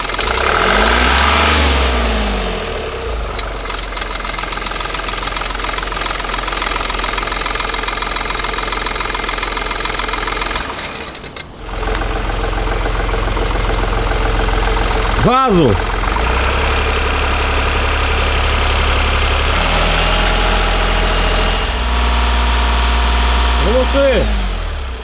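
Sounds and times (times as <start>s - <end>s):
diesel engine revving and idling: 0.0s - 25.0s
fast clicking from pulley: 3.3s - 15.2s.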